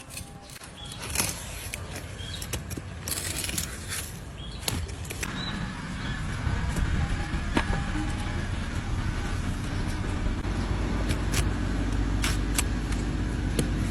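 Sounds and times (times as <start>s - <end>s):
tools scraping a hoof: 0.0s - 5.3s
low steady rumble: 5.2s - 13.9s.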